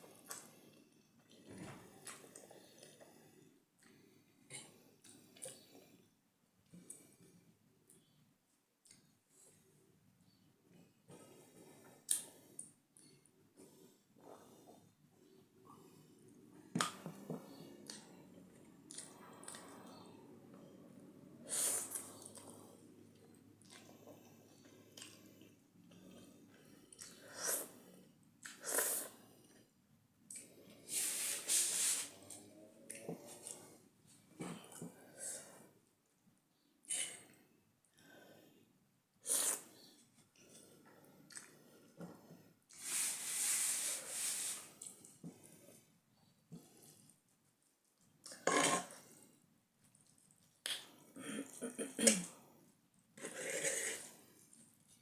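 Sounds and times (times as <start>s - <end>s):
quiet chewing: 16.8s - 20.7s, 21.8s - 27.2s, 39.6s - 42.8s, 44.8s - 52.4s
slurping noodles: 53.2s - 54.6s.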